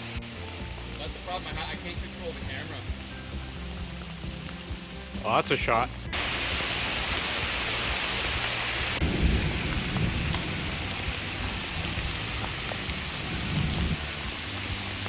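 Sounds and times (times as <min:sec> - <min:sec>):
steady rain falling: 0:00.0 - 0:15.0
low rumble of thunder: 0:09.0 - 0:14.0.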